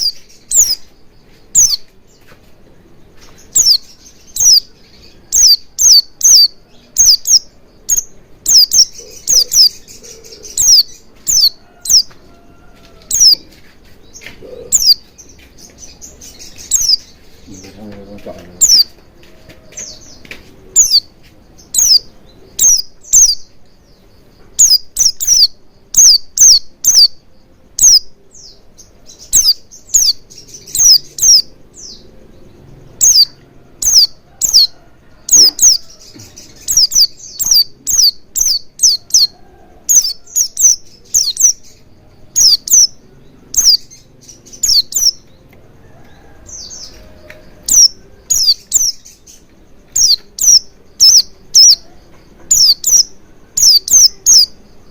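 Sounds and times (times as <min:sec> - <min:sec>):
bird high falling chirps: 0:00.0 - 0:02.4, 0:03.2 - 0:13.5, 0:14.2 - 0:17.8, 0:18.6 - 0:19.0, 0:19.8 - 0:23.6, 0:24.4 - 0:27.2, 0:33.0 - 0:41.8, 0:42.4 - 0:45.4, 0:46.5 - 0:49.2.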